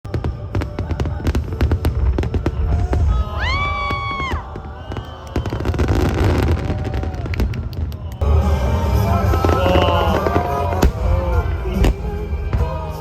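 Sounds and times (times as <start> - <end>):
fireworks booming: 0.1 - 13.0
fireworks crackling: 0.1 - 13.0
music playing: 8.2 - 13.0.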